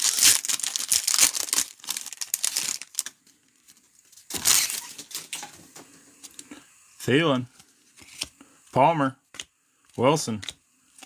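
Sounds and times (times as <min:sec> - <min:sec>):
wrapper tearing rip: 0:00.0 - 0:03.1, 0:04.3 - 0:05.2
card pack wrappers crinkling: 0:00.0 - 0:05.3.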